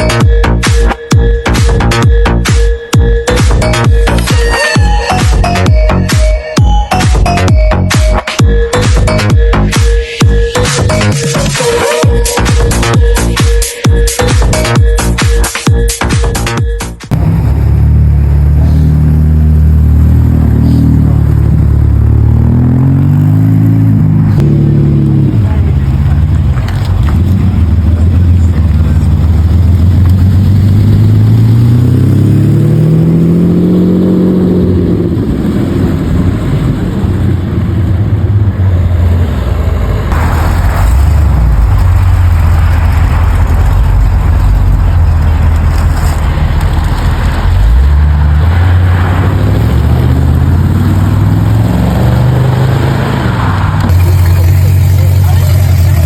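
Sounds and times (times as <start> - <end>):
car engine rumbling and revving: 0.0 - 56.0.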